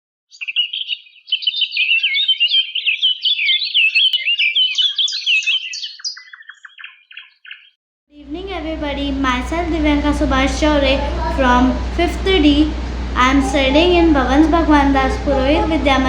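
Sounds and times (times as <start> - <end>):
birds chirping and whistling: 0.3 - 7.8.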